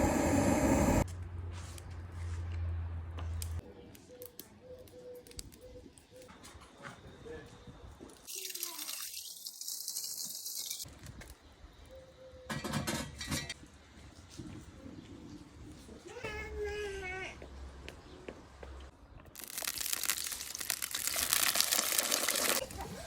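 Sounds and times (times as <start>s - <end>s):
food sizzling in a hot pan: 19.4s - 22.6s.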